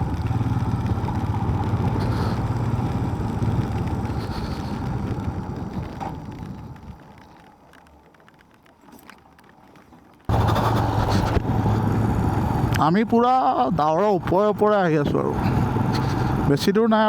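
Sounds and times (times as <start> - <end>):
motorcycle engine running: 0.0 - 6.8, 10.3 - 16.6
faint clicks: 0.8 - 10.3.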